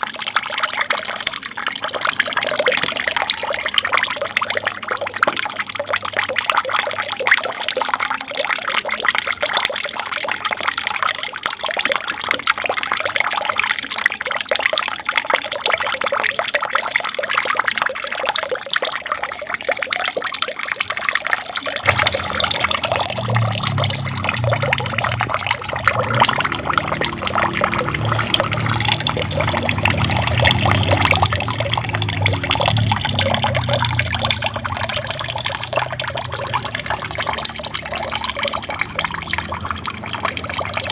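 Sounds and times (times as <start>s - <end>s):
water trickling and splashing: 0.0s - 40.9s
low rumble: 21.9s - 38.0s.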